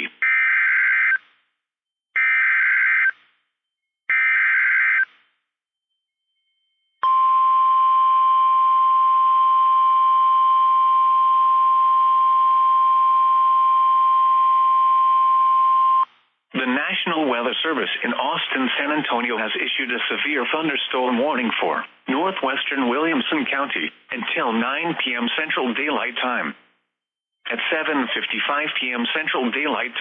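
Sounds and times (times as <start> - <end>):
steady single-pitch alarm tone: 5.9 - 16.0.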